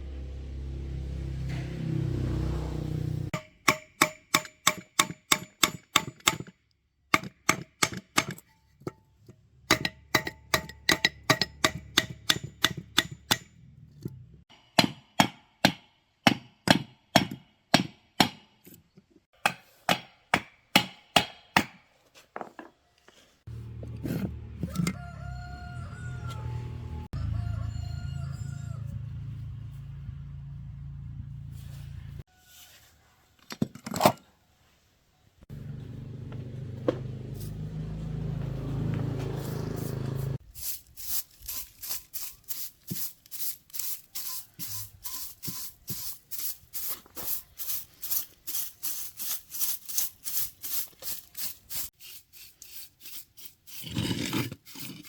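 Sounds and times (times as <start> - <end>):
hammer striking metal: 3.4 - 6.5, 9.7 - 13.5.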